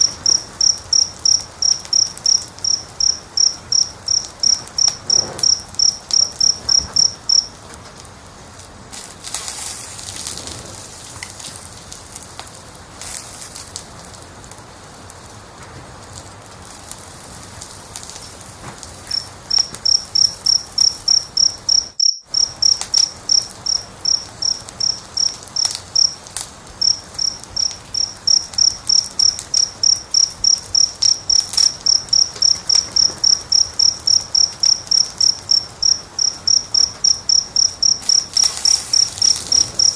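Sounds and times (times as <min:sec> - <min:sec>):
cricket chirping: 0:00.0 - 0:07.8, 0:17.6 - 0:39.9
wood fire crackling: 0:00.0 - 0:39.9.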